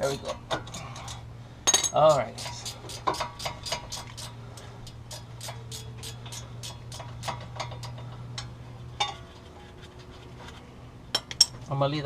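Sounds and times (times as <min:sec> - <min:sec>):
ratchet wrench clicking: 0:02.1 - 0:08.5.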